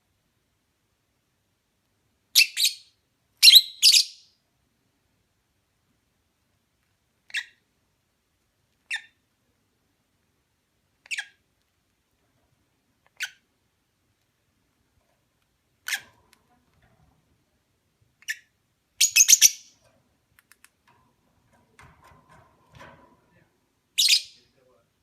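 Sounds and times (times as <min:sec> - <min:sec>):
lovebirds chirping: 0:18.2 - 0:19.8, 0:24.0 - 0:24.5.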